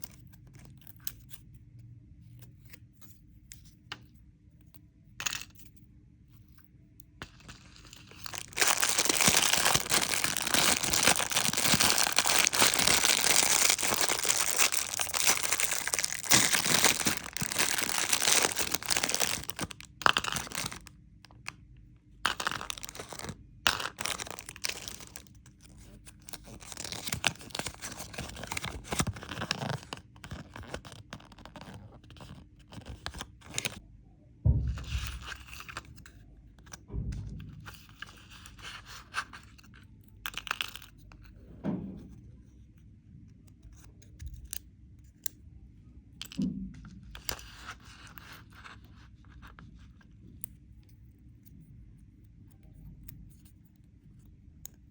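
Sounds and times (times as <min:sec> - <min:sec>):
candy wrapper crinkling: 0:07.3 - 0:21.4, 0:22.3 - 0:33.8, 0:38.1 - 0:41.1.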